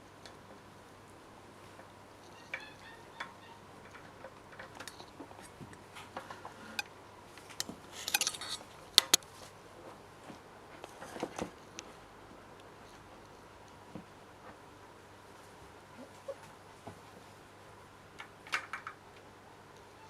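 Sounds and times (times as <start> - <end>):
puppy squealing: 2.3 - 3.6.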